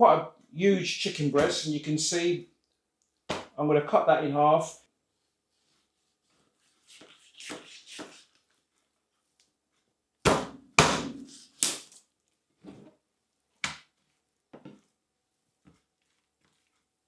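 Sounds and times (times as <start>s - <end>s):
knife chopping on cutting board: 10.3s - 11.8s.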